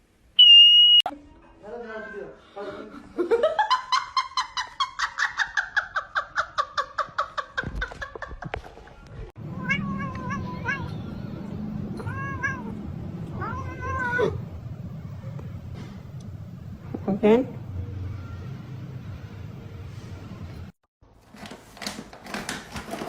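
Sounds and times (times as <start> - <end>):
cat meowing: 9.4 - 14.5.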